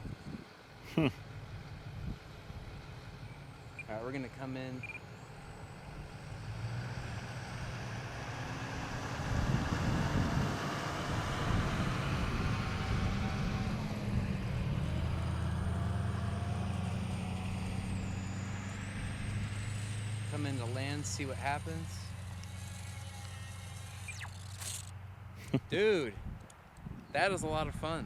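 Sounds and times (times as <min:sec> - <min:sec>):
wind on microphone: 0:00.0 - 0:00.5, 0:08.8 - 0:15.2, 0:26.1 - 0:28.0
electric motors whining: 0:11.4 - 0:25.0.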